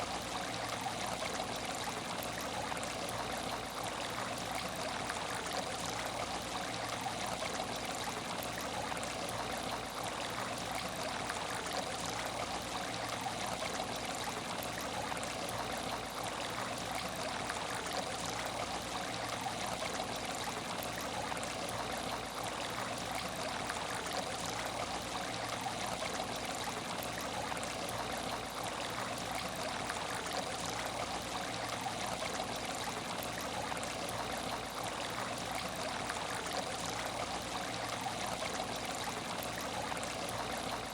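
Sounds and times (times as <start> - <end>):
aquarium water trickling: 0.0 - 40.9.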